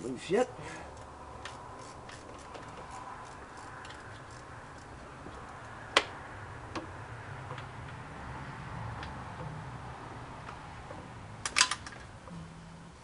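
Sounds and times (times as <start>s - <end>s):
ratchet wrench clicking: 1.0s - 5.0s.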